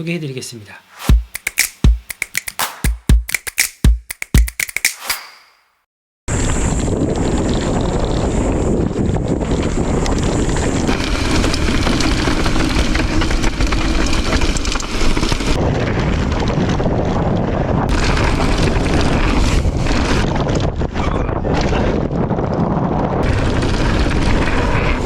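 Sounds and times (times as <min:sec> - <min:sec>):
wind buffeting microphone: 0:06.3 - 0:13.2, 0:15.5 - 0:25.0.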